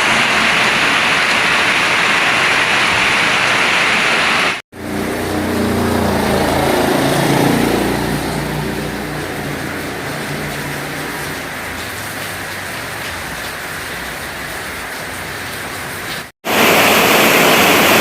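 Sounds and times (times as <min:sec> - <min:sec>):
heavy rain: 0:00.0 - 0:18.0
vehicle engine hum: 0:04.7 - 0:16.7.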